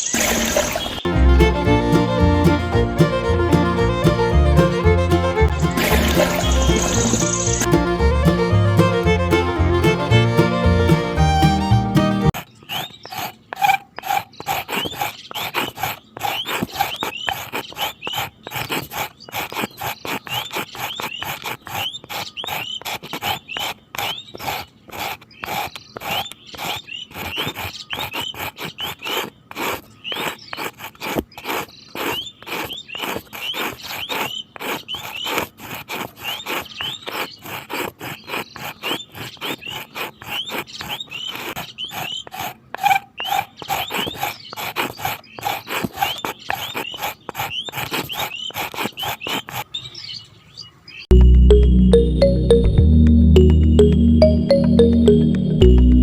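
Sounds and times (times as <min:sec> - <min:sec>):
animal chirping calls: 0:38.6 - 0:50.2.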